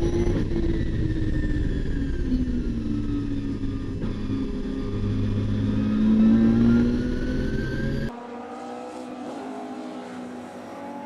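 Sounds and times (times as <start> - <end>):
car engine accelerating hard: 0.0 - 11.0
car driving past: 5.7 - 11.0.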